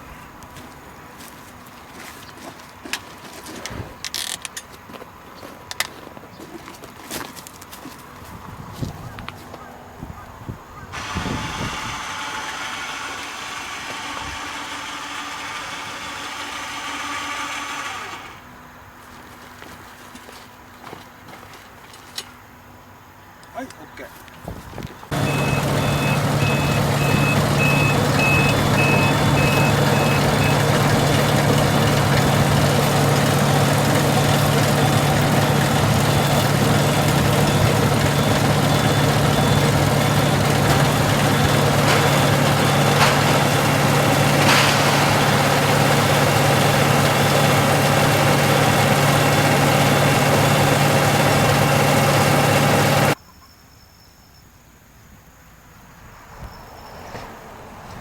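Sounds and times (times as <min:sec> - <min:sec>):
electronic warning beeps: 0:25.1 - 0:30.8, 0:34.9 - 0:44.6
tractor engine idling: 0:25.1 - 0:53.2.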